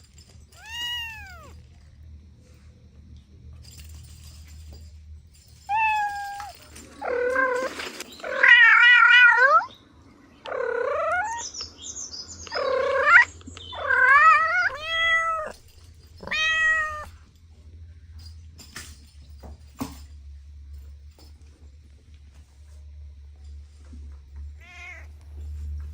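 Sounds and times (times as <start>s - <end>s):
cat meowing: 0.6s - 1.6s, 5.7s - 7.7s, 10.5s - 11.4s, 12.5s - 15.6s, 16.2s - 17.2s, 24.6s - 25.1s.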